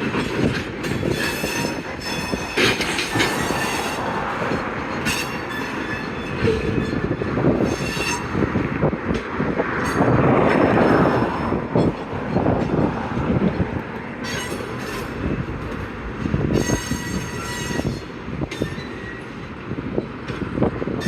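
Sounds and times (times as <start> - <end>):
freight train cars rumbling: 0.0 - 21.0
train cars clanking: 0.0 - 21.0
high-pitched wheel squeal: 5.1 - 8.4, 16.5 - 19.2.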